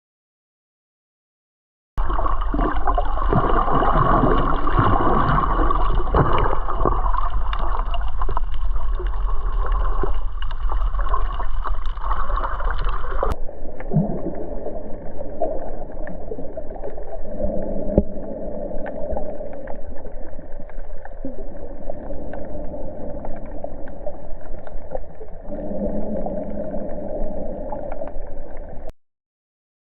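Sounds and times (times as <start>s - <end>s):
muffled underwater rushing: 2.0s - 28.9s
underwater crackles and clicks: 2.0s - 28.9s.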